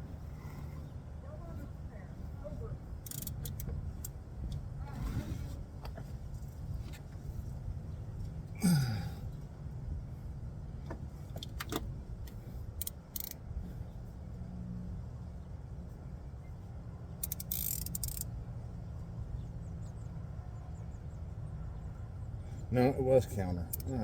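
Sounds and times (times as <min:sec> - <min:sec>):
sharp clicks: 0:03.0 - 0:04.2, 0:12.8 - 0:13.4, 0:17.2 - 0:18.3, 0:23.7 - 0:24.0.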